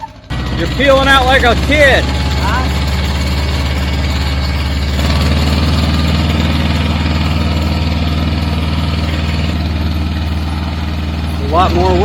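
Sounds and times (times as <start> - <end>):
diesel tractor engine under load: 0.0 - 12.0.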